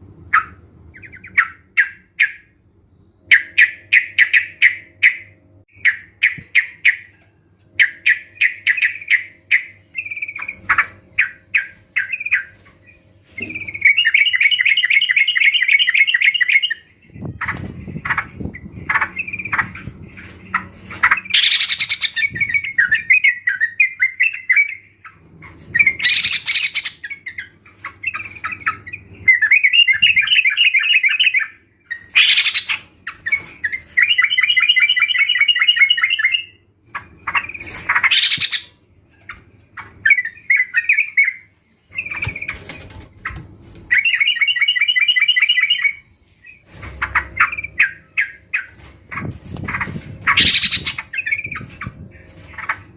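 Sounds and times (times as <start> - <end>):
bulbuls singing: 7.8 - 52.9
loud sweeping bird call: 21.0 - 25.0, 49.7 - 51.6.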